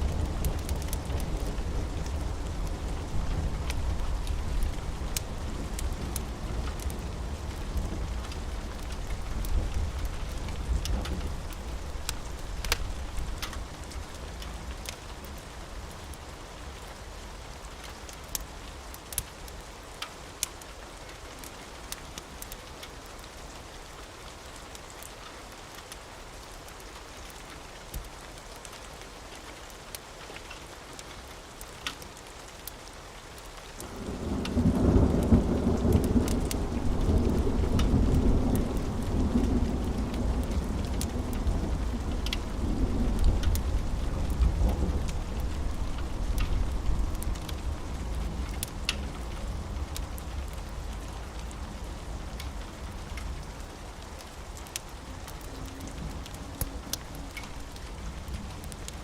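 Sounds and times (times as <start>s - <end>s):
steady rain: 0.0s - 59.0s
wood fire crackling: 0.0s - 59.0s
rolling thunder: 34.0s - 50.6s.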